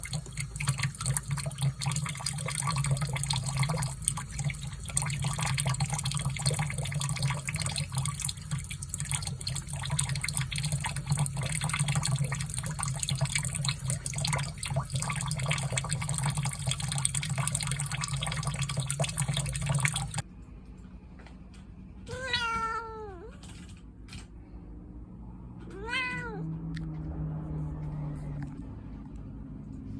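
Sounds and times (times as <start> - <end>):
tap water running: 0.0 - 20.2
cat meowing: 22.1 - 23.5, 25.7 - 26.6.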